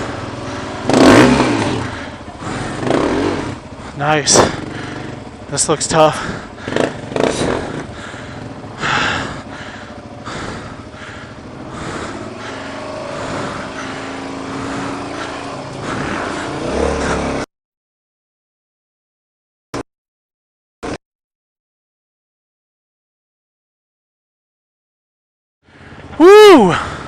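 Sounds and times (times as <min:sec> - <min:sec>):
dirt bike engine revving: 0:00.0 - 0:17.5.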